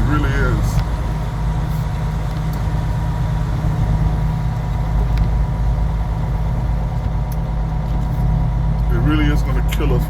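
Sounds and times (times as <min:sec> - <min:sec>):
vehicle engine droning: 0:00.0 - 0:10.0.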